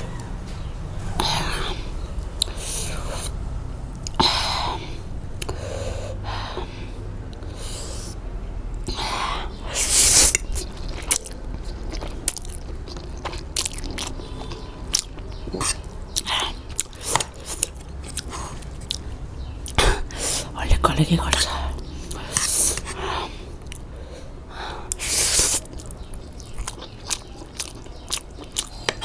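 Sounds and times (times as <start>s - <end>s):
person chewing crunchy food: 9.8s - 20.5s, 21.3s - 24.0s, 24.8s - 29.0s.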